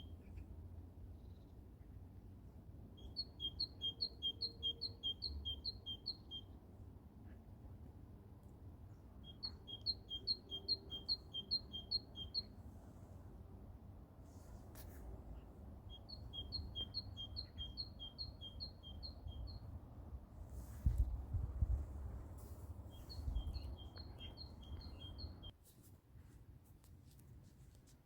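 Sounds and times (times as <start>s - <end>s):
songbird singing: 2.9s - 6.6s, 9.2s - 12.6s, 15.3s - 19.8s, 22.8s - 25.6s.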